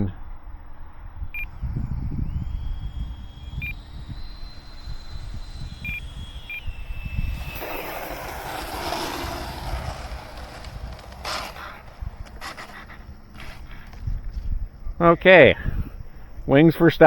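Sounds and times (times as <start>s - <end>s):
wind rumbling on microphone: 0.3s - 16.5s
electric ducted-fan jet whining: 0.6s - 16.1s
rushing noise: 1.4s - 13.7s.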